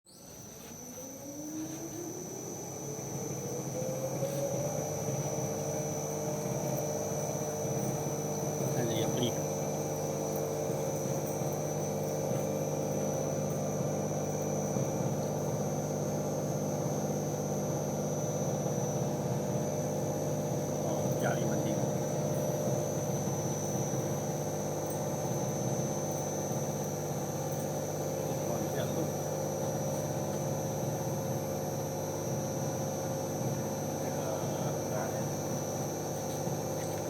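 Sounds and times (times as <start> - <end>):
test bench machine humming: 0.1 - 37.0.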